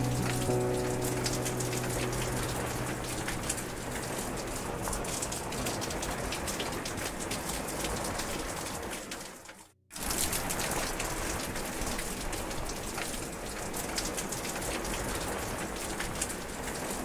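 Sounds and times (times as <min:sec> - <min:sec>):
low held tone: 0:00.0 - 0:05.5
rain falling into a puddle: 0:00.0 - 0:17.0.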